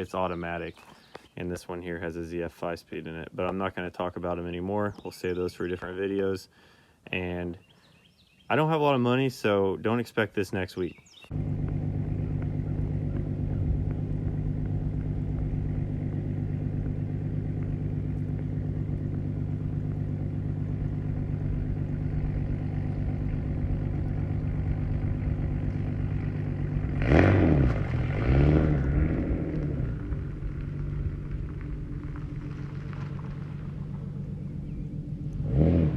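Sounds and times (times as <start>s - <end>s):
car engine idling and revving: 11.3s - 35.9s.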